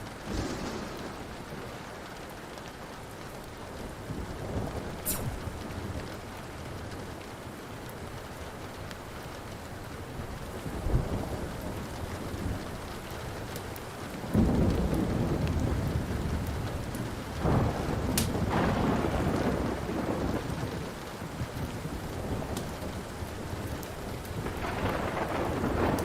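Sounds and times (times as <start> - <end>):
thunder rumbling: 0.0 - 7.2, 14.2 - 26.0
steady rain: 0.0 - 26.0
wood fire crackling: 0.0 - 26.0.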